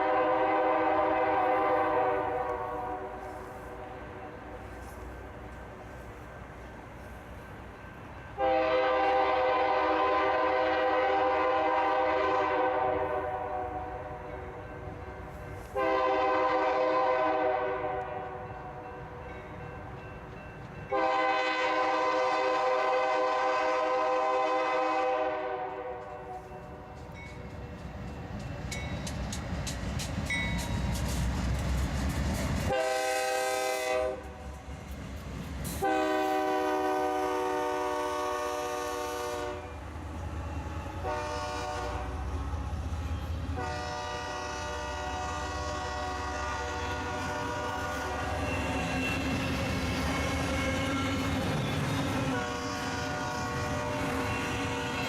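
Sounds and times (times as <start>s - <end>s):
locomotive air horn blasts: 0.0s - 4.4s, 8.4s - 14.1s, 15.6s - 18.5s, 20.9s - 26.5s, 32.7s - 34.4s, 35.8s - 39.8s, 41.0s - 42.3s, 43.5s - 49.2s, 52.3s - 55.0s
train rumble: 0.0s - 55.0s
wheels clicking over rail joints: 25.9s - 32.8s.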